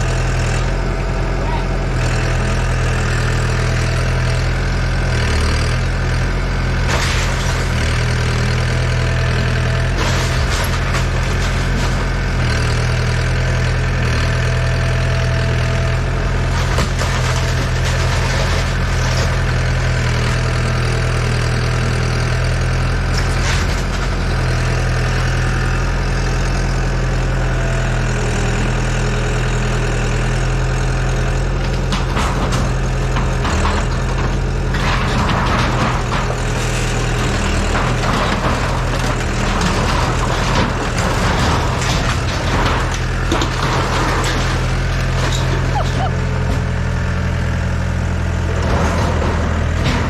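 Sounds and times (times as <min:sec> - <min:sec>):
excavator diesel engine running: 0:00.0 - 0:50.0
rattling and scraping: 0:06.8 - 0:13.2, 0:16.3 - 0:20.6, 0:23.0 - 0:24.7, 0:31.5 - 0:50.0.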